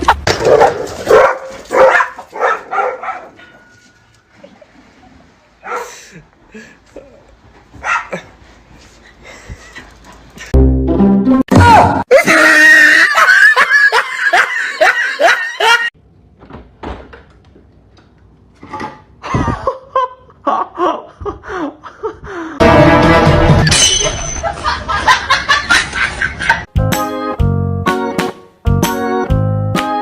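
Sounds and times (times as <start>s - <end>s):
laughter: 12.8s - 15.9s, 19.2s - 22.6s, 24.3s - 26.7s
loud music: 22.6s - 23.7s.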